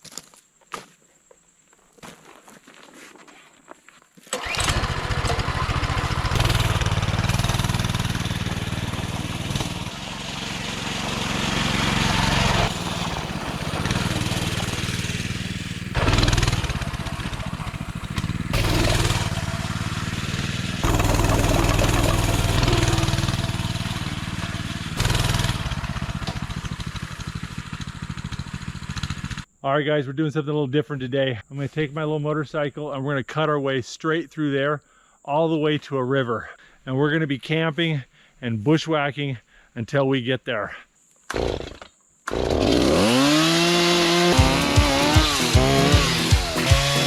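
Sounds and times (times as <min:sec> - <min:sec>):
small engine starting and revving: 0:04.3 - 0:29.5, 0:41.3 - 0:47.0.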